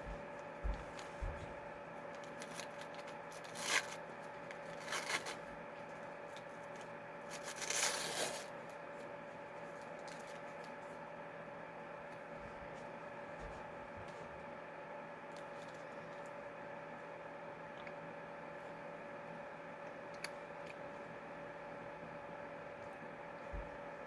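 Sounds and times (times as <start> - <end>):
electrical hum: 0.0 - 24.0
paper wrapper tearing and rustling: 2.2 - 4.0, 4.6 - 5.5, 6.4 - 8.5.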